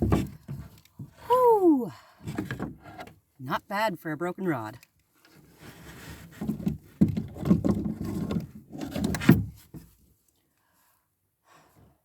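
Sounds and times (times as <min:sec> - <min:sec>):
dull knocks and rubbing: 0:00.0 - 0:01.2, 0:05.6 - 0:10.0.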